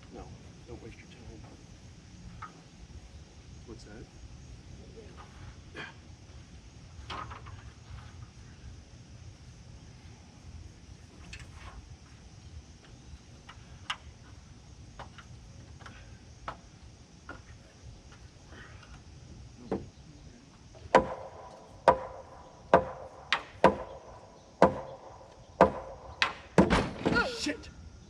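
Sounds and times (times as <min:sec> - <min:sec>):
hammer striking wood: 0:20.9 - 0:26.9.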